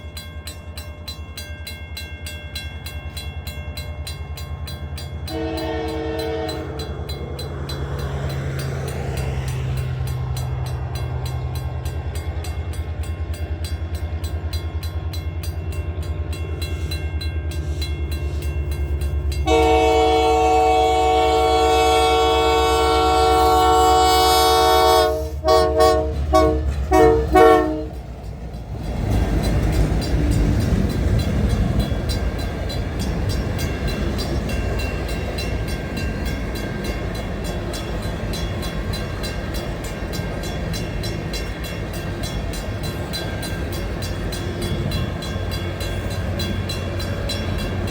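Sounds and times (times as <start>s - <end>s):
wheels on rails: 0.0s - 47.9s
diesel locomotive engine running: 2.5s - 47.9s
train air horn blasts: 5.3s - 6.8s, 19.4s - 28.0s.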